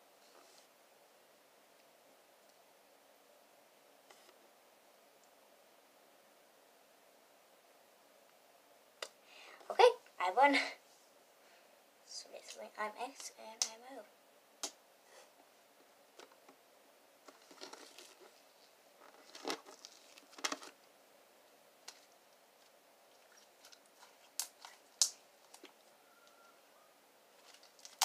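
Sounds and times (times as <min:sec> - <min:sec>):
slime squishing: 0:19.1 - 0:20.6, 0:21.9 - 0:25.8.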